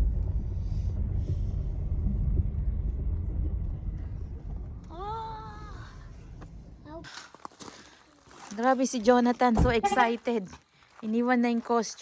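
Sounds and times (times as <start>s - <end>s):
car engine rumbling: 0.0s - 7.6s.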